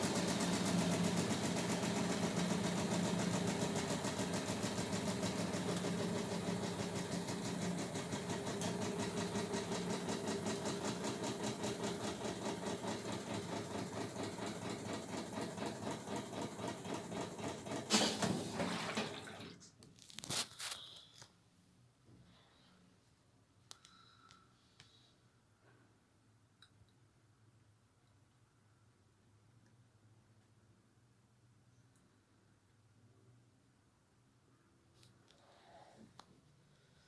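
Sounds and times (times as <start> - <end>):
washing machine running: 0.0 - 19.6.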